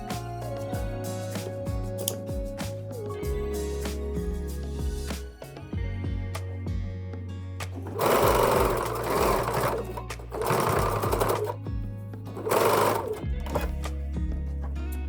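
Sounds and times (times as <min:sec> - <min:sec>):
sewing machine stitching: 0:07.8 - 0:11.6, 0:12.4 - 0:13.8.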